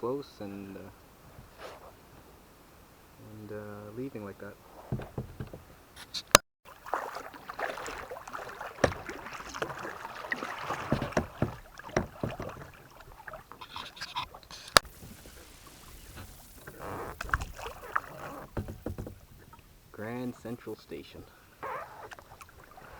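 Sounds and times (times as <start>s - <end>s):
paddle strokes splashing water: 0.8s - 22.9s
sharp knocks: 4.9s - 5.7s, 8.8s - 9.9s, 10.6s - 13.1s, 18.5s - 19.4s.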